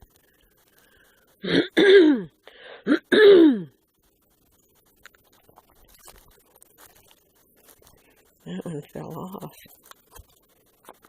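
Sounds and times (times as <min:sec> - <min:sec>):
person clearing throat: 0:01.4 - 0:03.7.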